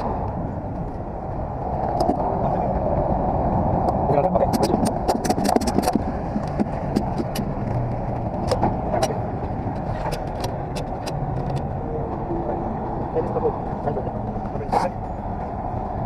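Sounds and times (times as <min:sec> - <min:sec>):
truck engine and road rumble: 0:00.0 - 0:16.0
sharp clicks and rattles: 0:03.8 - 0:11.8.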